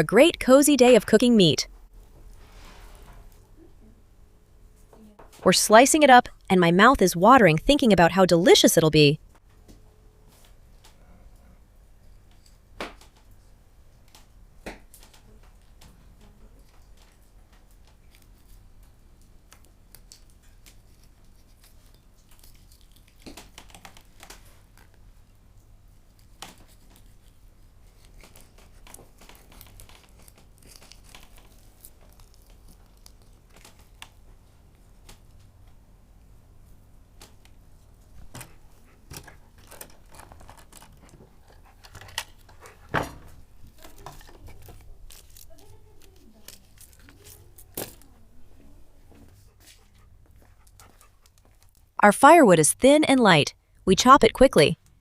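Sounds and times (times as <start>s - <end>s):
rustling and tearing: 19.9s - 24.9s, 26.2s - 34.0s, 39.6s - 42.5s, 43.8s - 48.1s.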